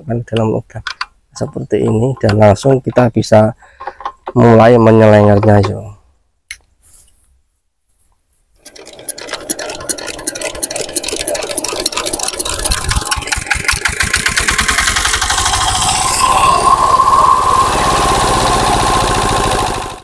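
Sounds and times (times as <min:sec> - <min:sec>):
crank clicks: 0:08.6 - 0:15.7
diesel engine chugging: 0:09.5 - 0:20.0.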